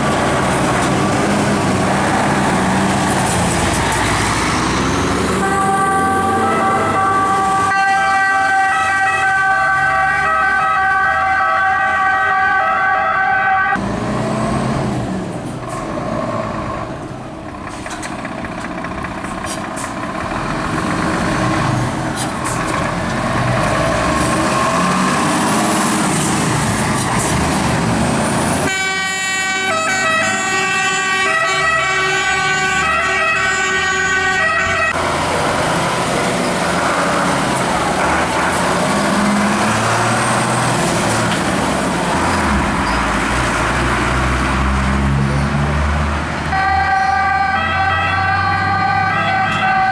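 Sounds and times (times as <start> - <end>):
fire engine engines and road noise: 0.0 - 49.9
two-tone siren: 5.4 - 13.8, 28.7 - 35.0, 46.5 - 49.9.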